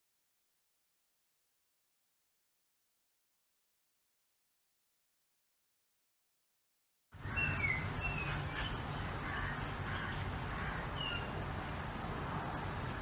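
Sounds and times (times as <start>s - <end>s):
high bird chirps: 7.2s - 10.2s.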